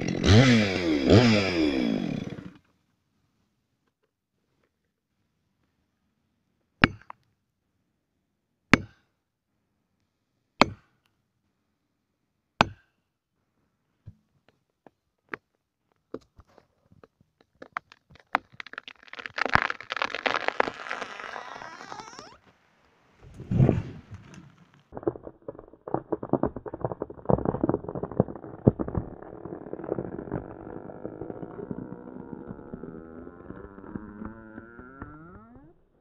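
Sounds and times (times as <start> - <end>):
wood snapping and crackling: 17.0 - 22.5, 23.2 - 35.2.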